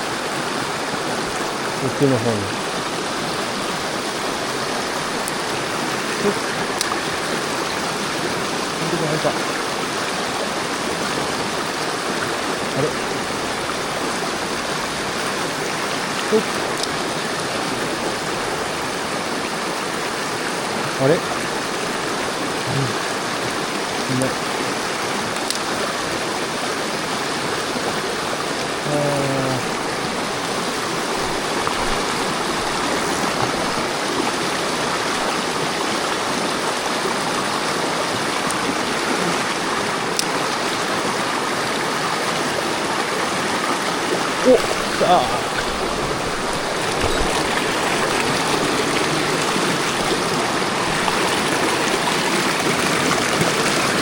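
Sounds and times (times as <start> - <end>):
stream rushing over rocks: 0.0 - 54.0
person vocal sound: 22.6 - 23.0, 28.8 - 30.0, 44.4 - 47.0.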